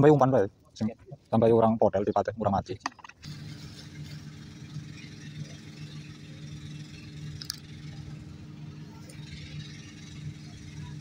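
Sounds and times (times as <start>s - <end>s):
engine idling: 3.1s - 11.0s.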